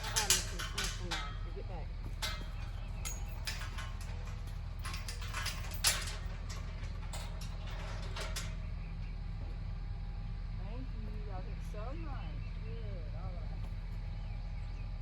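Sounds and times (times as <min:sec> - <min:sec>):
metallic clicks and clanks: 0:00.0 - 0:08.7
low mechanical hum: 0:00.0 - 0:15.0.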